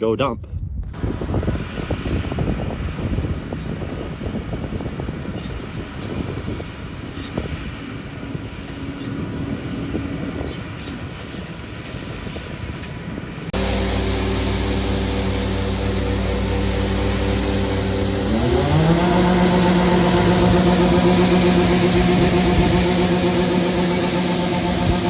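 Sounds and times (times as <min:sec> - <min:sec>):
background music: 0:13.6 - 0:25.0
heavy vehicle engine running: 0:13.6 - 0:25.0.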